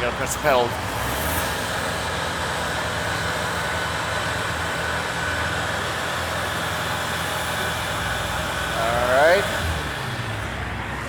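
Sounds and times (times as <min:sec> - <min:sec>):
boom lift engine and hydraulics: 0:00.0 - 0:11.0
traffic noise: 0:00.0 - 0:11.0.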